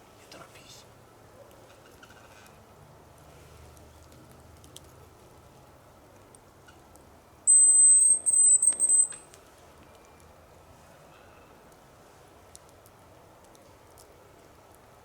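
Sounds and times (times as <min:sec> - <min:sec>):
high thin lure whistle: 0:07.5 - 0:09.3.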